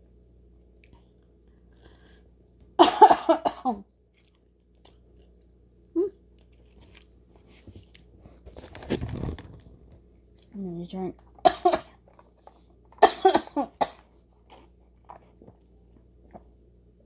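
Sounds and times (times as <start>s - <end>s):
person chewing fried food: 4.0s - 8.5s, 14.0s - 16.6s.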